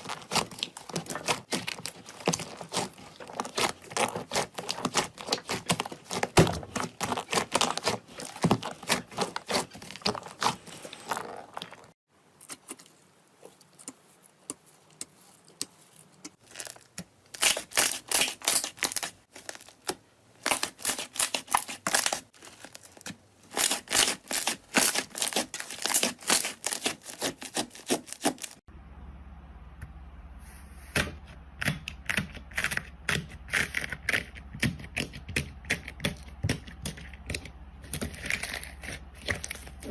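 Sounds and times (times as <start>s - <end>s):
steady low hum: 28.7s - 33.1s.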